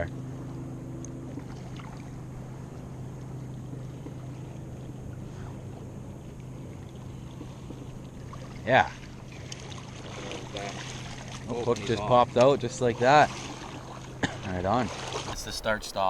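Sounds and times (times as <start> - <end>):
low even hum: 0.0 - 11.4, 15.4 - 16.0
river water rushing: 15.4 - 16.0.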